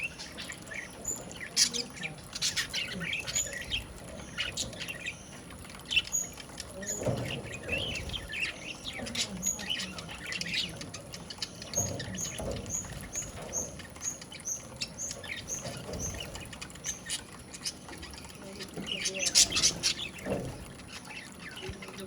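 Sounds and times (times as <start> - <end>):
light pattering clicks: 0.0 - 22.0.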